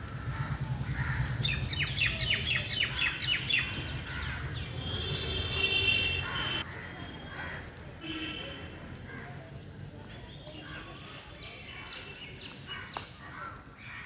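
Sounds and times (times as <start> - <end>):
birds chirping: 0.3 - 6.6.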